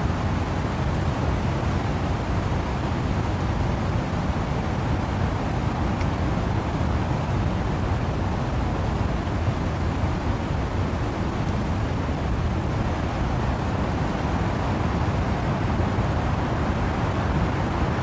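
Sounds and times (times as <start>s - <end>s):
wind and rain in trees: 0.0s - 18.0s.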